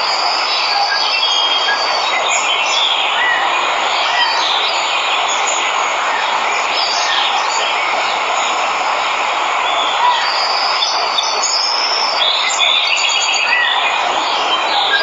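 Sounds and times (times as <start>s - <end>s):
birds chirping: 0.0s - 15.0s
waterfall rushing: 0.0s - 15.0s.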